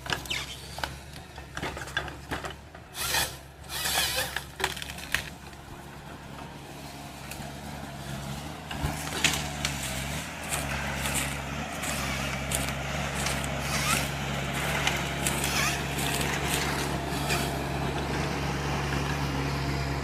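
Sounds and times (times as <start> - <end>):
heavy machine motor hum: 4.7 - 20.0.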